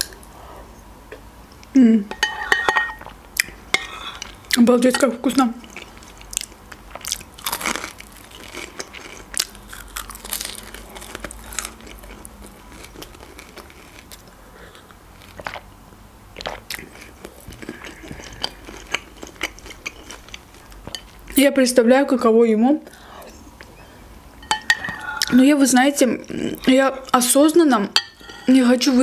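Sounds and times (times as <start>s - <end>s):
chewing with crisp crunches: 5.6s - 15.7s, 16.4s - 21.4s.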